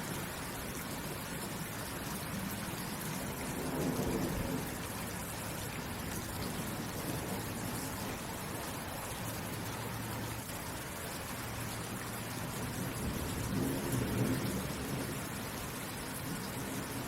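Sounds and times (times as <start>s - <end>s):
steady rain falling: 0.0s - 17.0s
low thunder rumble: 2.3s - 8.6s, 12.5s - 17.0s.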